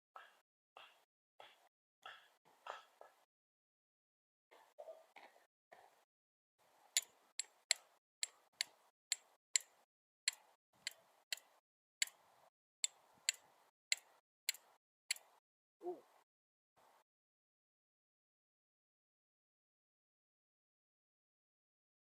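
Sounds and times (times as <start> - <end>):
sharp bright clicks: 7.0 - 12.2, 12.8 - 15.3.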